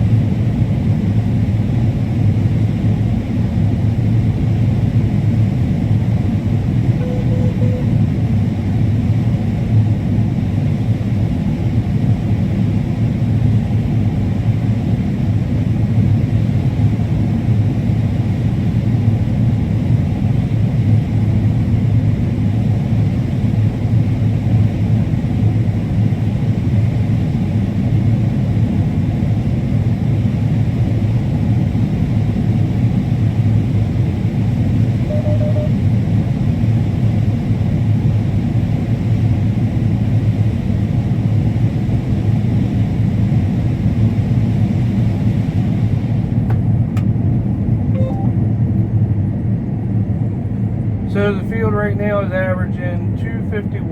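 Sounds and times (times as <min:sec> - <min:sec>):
combine harvester droning: 0:06.9 - 0:08.2.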